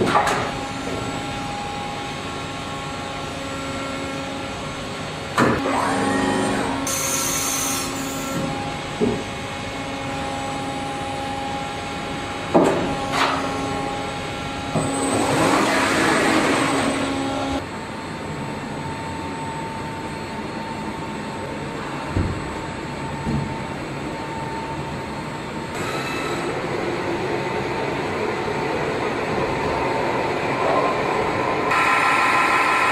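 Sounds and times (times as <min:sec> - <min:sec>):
machine whining: 0:24.3 - 0:32.9.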